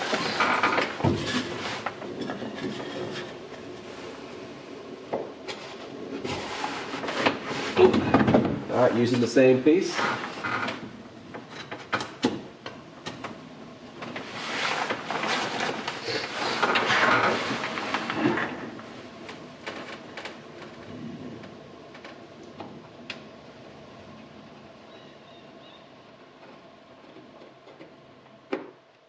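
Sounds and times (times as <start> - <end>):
wood scraping and rubbing: 0.0 - 4.7, 5.4 - 12.0, 13.9 - 22.1.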